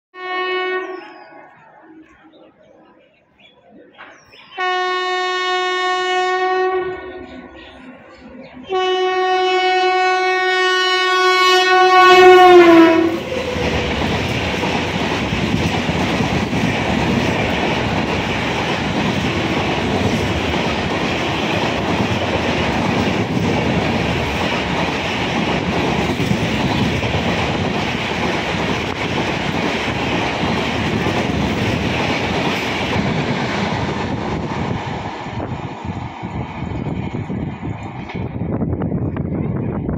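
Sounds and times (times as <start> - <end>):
train horn blasts: 0.2 - 1.2, 4.6 - 7.4, 8.7 - 13.6
train coaches rushing past: 0.6 - 39.9.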